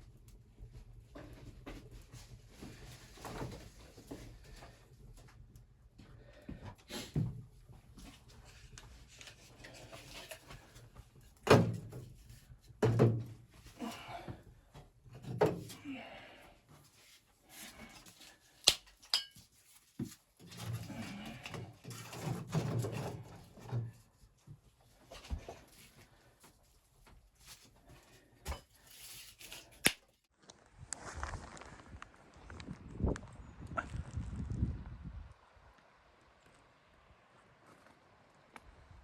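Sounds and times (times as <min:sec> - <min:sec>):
objects knocking and thumping: 0:12.7 - 0:13.4.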